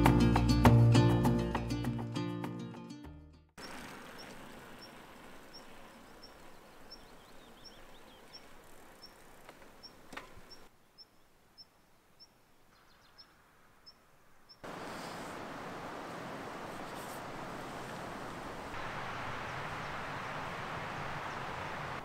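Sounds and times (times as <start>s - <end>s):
bird chirping: 3.6s - 15.0s
bird twittering faintly: 3.6s - 17.6s.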